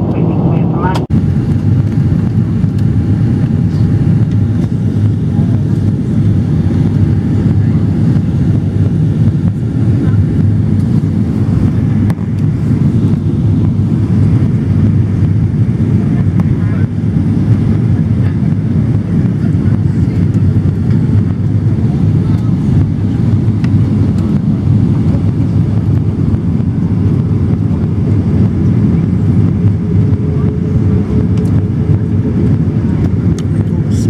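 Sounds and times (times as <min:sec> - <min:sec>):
airliner landing rumble: 0:00.0 - 0:34.0.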